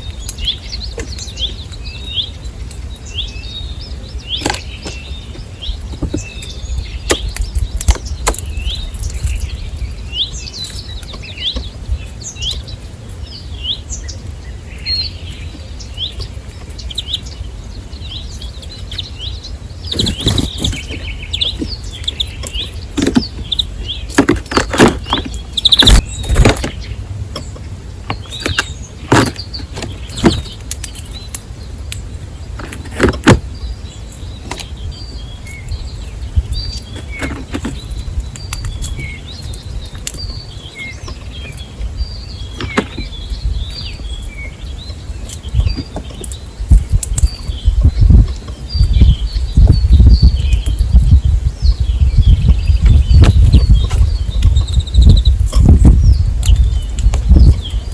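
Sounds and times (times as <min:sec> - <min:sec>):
small birds chirping: 0:00.0 - 0:57.9
steady low rumble: 0:33.4 - 0:57.9.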